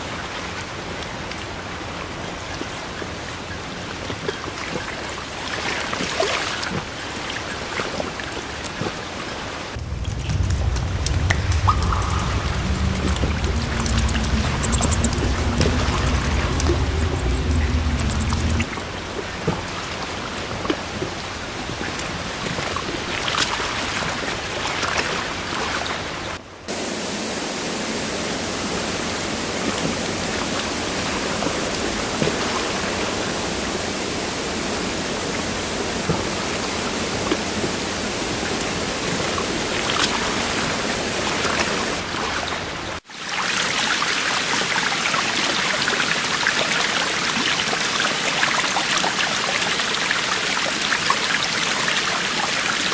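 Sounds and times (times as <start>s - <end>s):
stream water rushing: 0.0s - 52.9s.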